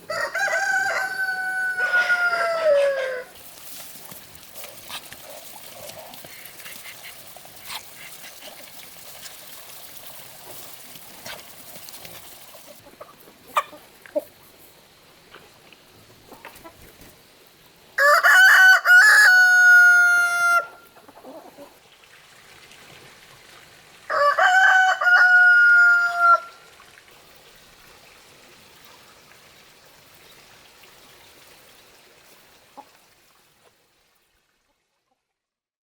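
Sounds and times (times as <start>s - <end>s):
rooster crowing: 0.1s - 3.4s, 18.0s - 20.8s, 24.1s - 26.6s.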